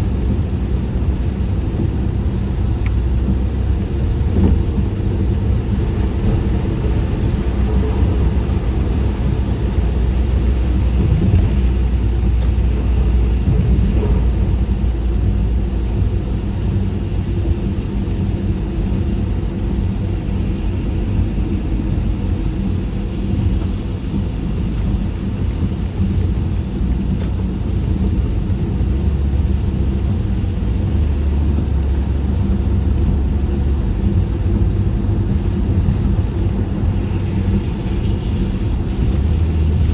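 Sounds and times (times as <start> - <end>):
car tyres and engine rumbling: 0.0 - 39.9.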